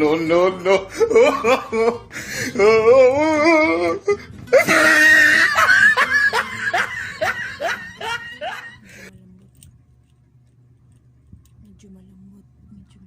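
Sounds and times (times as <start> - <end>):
person laughing: 0.3 - 9.1.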